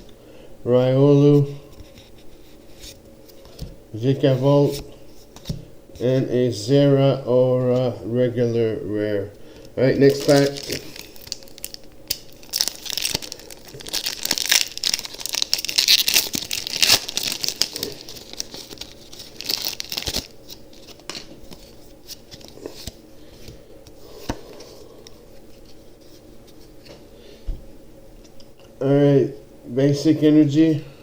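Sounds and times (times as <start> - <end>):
foil wrapper tearing and crinkling: 10.0 - 23.0.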